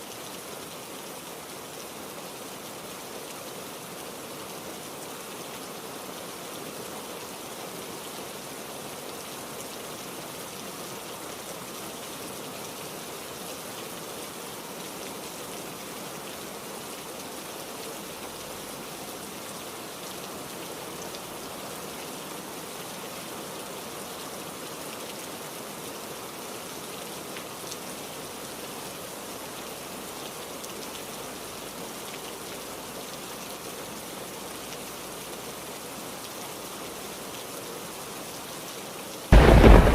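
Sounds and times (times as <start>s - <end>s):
heavy rain hissing: 39.3s - 39.9s.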